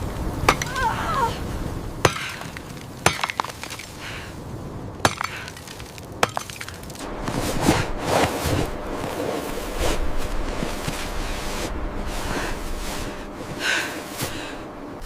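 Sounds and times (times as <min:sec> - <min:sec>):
rush of noise: 0:07.0 - 0:15.0.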